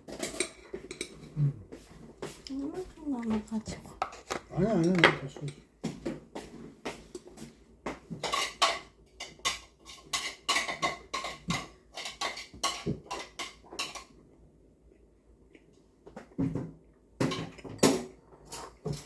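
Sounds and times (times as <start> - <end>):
utensils clinking against bowls: 0.1 - 1.4, 8.2 - 14.1.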